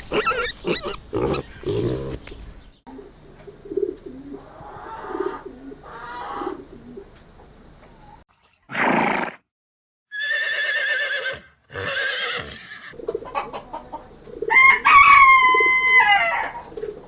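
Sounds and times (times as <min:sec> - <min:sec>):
rooster crowing: 0:14.5 - 0:16.6.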